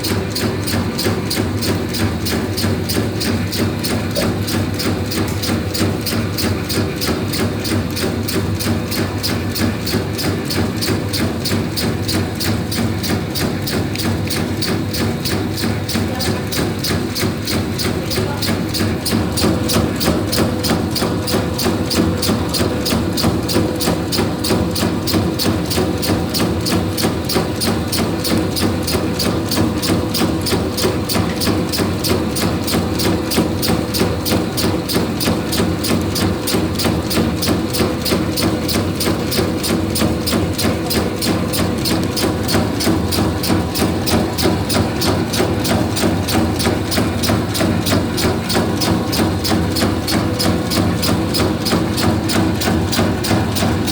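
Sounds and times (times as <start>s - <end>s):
machine motor hum: 0.0s - 53.9s
rapid mechanical clacking: 0.0s - 53.9s.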